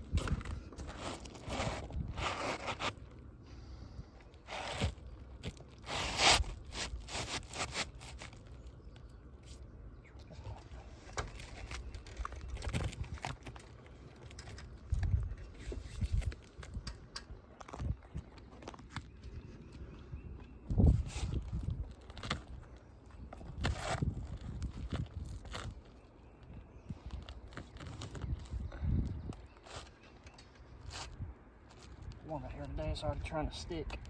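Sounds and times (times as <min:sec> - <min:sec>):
shingles scraping and crunching: 0:00.0 - 0:03.3, 0:04.3 - 0:08.8, 0:11.0 - 0:16.8, 0:20.9 - 0:26.0.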